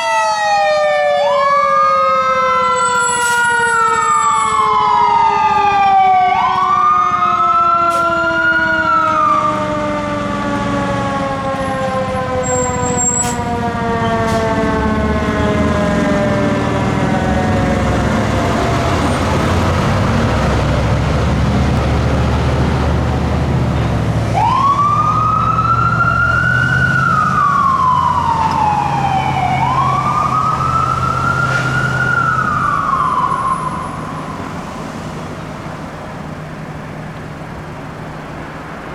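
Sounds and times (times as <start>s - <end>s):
electronic wail siren: 0.0s - 19.2s, 24.4s - 34.6s
siren winding down: 0.0s - 22.1s, 24.4s - 34.7s
diesel engine rumbling: 1.8s - 38.9s.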